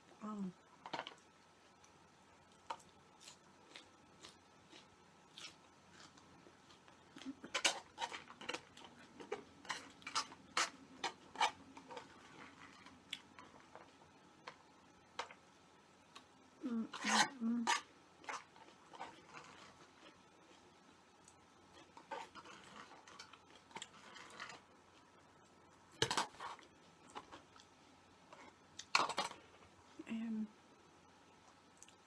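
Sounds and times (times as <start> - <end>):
chewing crunches: 2.5 - 14.6.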